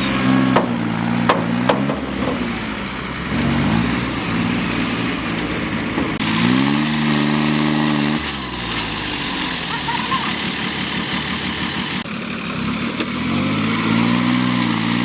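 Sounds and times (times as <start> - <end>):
heavy vehicle engine revving: 0.0 - 15.0.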